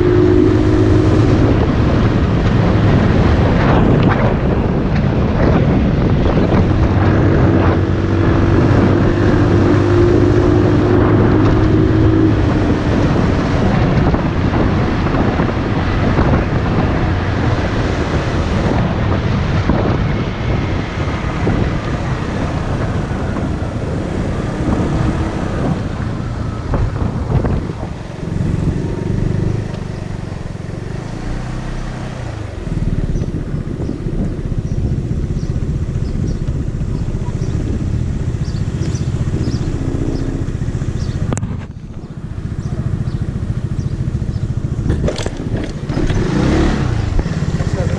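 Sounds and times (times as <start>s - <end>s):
motorcycle engine running: 0.0s - 47.9s
wind buffeting microphone: 0.0s - 47.9s.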